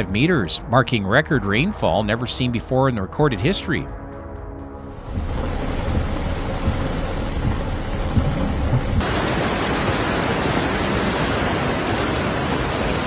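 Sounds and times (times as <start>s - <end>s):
low rumbling: 4.8s - 9.2s
heavy rain rushing: 4.9s - 13.0s.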